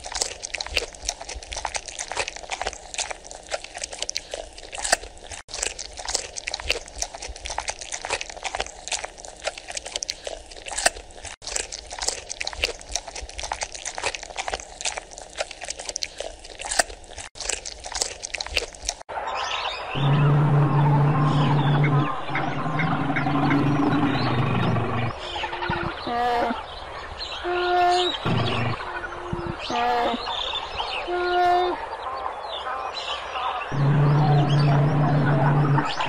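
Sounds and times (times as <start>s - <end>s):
panda chewing bamboo: 0.0s - 19.1s.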